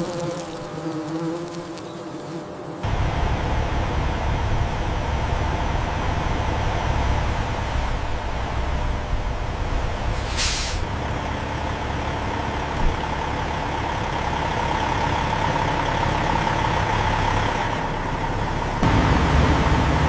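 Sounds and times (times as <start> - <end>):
constant whine: 2.4 - 10.2
diesel engine running: 2.8 - 20.0
air release hiss: 10.2 - 10.9.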